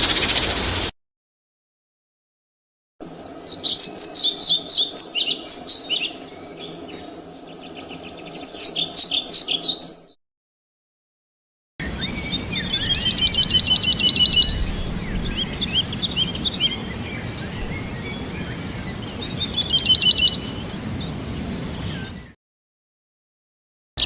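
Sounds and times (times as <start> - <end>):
songbirds singing: 3.0 - 10.2, 11.8 - 22.4
low background rumble: 11.8 - 19.5
high-pitched whine: 11.8 - 22.4.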